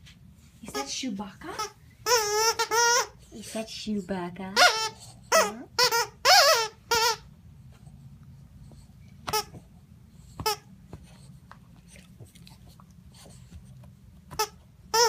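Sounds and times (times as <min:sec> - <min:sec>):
dog toy squeaking: 0:01.5 - 0:03.3, 0:04.6 - 0:07.3, 0:09.3 - 0:09.6, 0:14.3 - 0:15.0.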